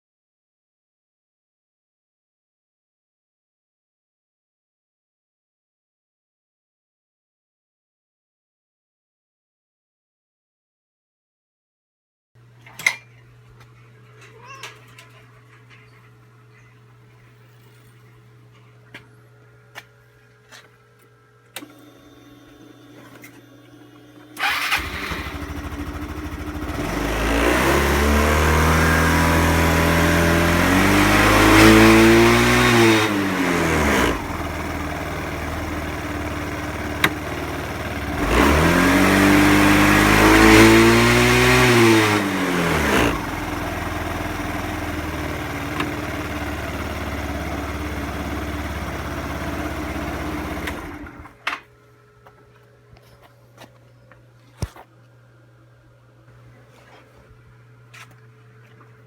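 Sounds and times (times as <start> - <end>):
scooter engine starting and revving: 21.6 - 51.4.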